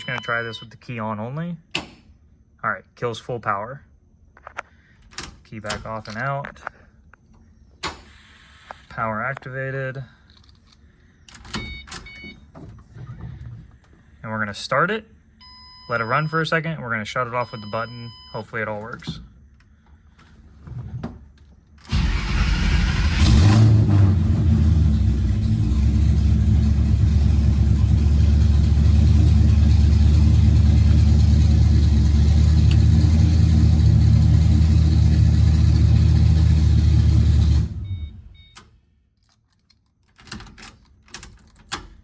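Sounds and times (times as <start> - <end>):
car engine starting and idling: 21.9 - 38.5.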